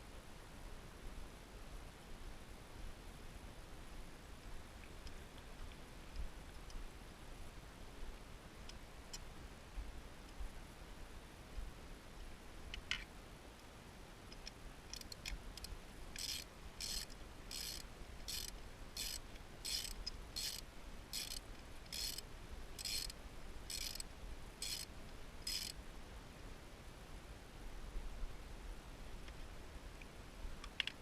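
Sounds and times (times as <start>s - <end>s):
ratchet wrench clicking: 14.9s - 22.2s, 22.8s - 23.1s, 23.7s - 24.0s, 24.6s - 25.8s.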